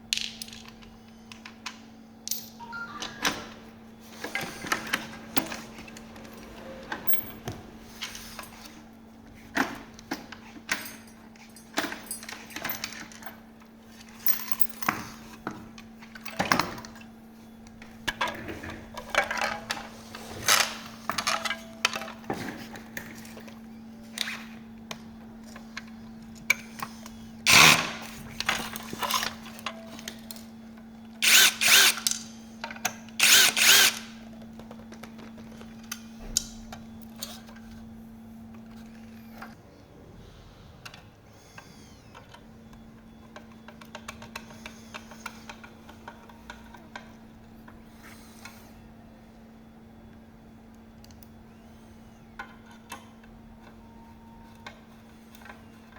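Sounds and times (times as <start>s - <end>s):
clicks and knocks of parts: 0.1s - 2.6s, 17.7s - 30.5s, 42.1s - 47.2s
power drill bursts: 27.5s - 28.0s, 31.2s - 32.1s, 33.2s - 34.1s.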